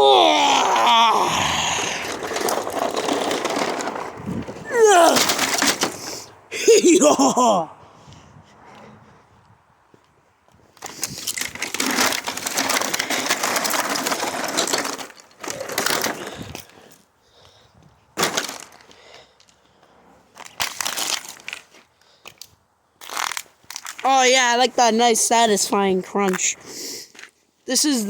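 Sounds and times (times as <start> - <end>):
plastic cracking and crunching: 0.2 - 6.2, 10.8 - 16.7, 18.2 - 18.8, 20.4 - 21.7, 22.3 - 24.1.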